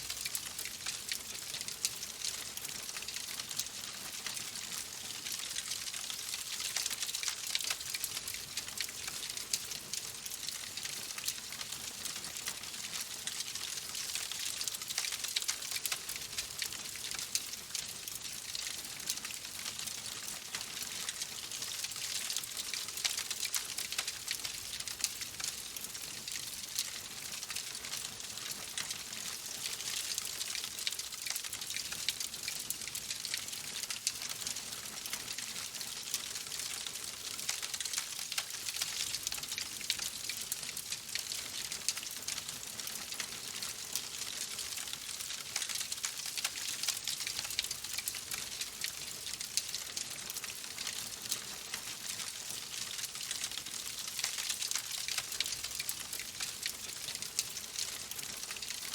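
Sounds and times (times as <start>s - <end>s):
wood fire crackling: 46.6s - 50.6s.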